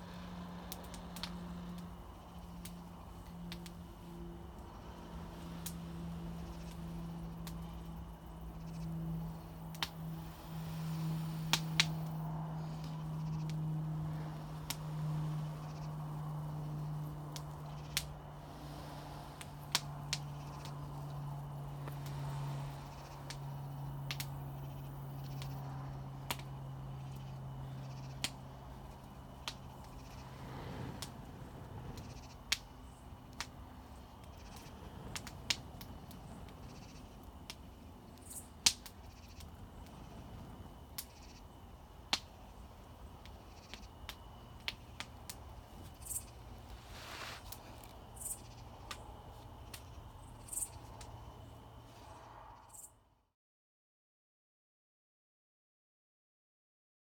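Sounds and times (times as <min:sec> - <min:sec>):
small fire crackling: 0:00.0 - 0:52.5
steady low hum: 0:00.0 - 0:52.8
insects chirping: 0:00.0 - 0:53.0
sharp fire pops: 0:34.5 - 0:36.6, 0:38.2 - 0:40.0.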